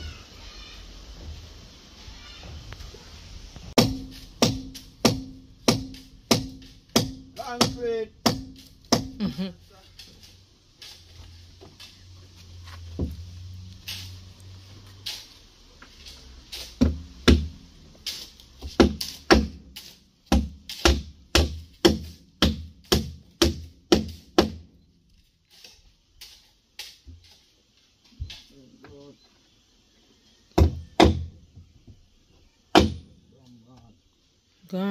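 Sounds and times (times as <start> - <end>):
hammer knocking wooden boards: 3.8 - 9.2, 20.3 - 24.6, 30.6 - 31.3, 32.7 - 33.1.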